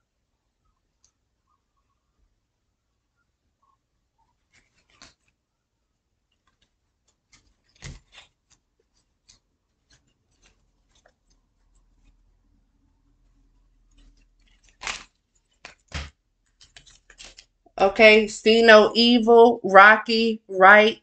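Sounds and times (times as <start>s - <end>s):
light rustling of handling: 3.6s - 5.5s, 6.2s - 12.4s.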